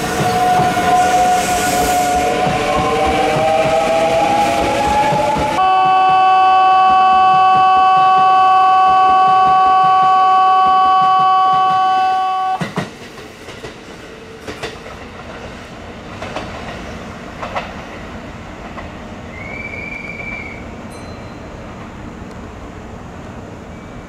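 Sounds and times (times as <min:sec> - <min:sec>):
train rumbling: 0:00.0 - 0:24.0
loud electronic tone: 0:05.6 - 0:12.6
wheels clacking over rail joints: 0:12.6 - 0:19.0.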